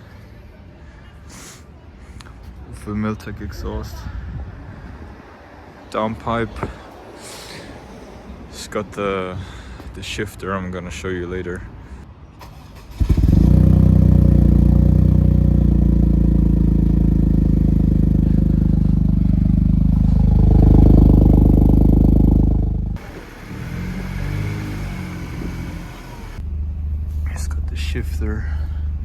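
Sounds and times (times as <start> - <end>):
car engine idling and revving: 12.8 - 29.0.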